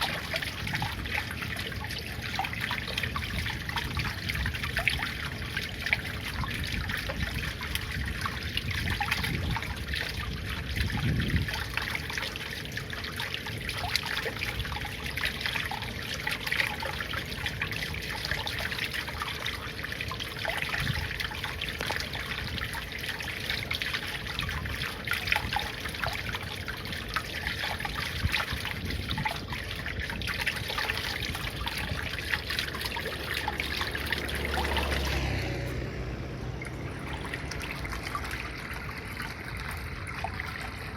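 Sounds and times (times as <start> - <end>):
water trickling: 0.0 - 40.9.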